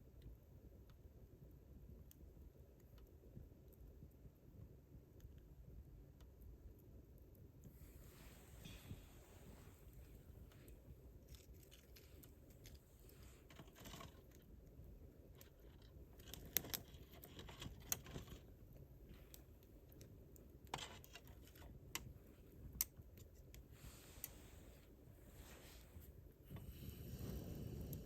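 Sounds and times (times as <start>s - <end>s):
low rush of flames: 7.7s - 11.1s, 23.7s - 28.0s.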